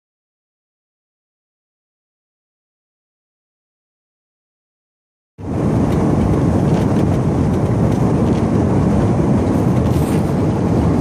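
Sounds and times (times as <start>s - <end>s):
truck engine rumble: 5.4s - 11.0s
tyre noise on snowy road: 5.4s - 11.0s.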